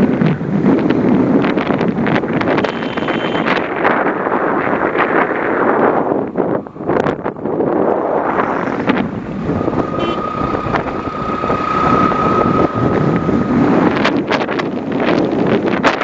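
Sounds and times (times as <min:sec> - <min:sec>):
wind buffeting microphone: 0:00.0 - 0:16.0
steady high whine: 0:07.9 - 0:14.8.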